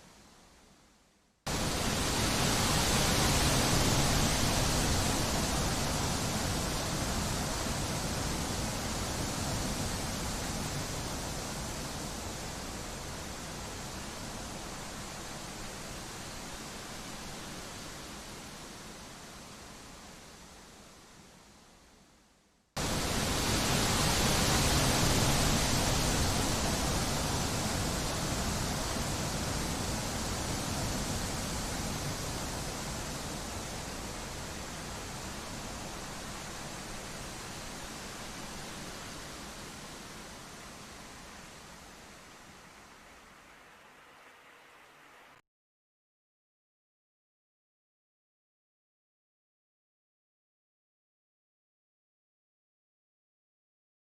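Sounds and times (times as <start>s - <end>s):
rushing wind: 1.5s - 20.4s, 22.8s - 45.1s.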